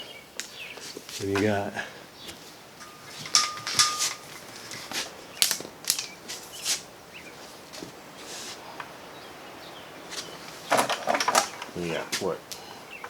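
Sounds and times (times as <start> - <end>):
cord rustling and scraping: 2.2 - 8.7.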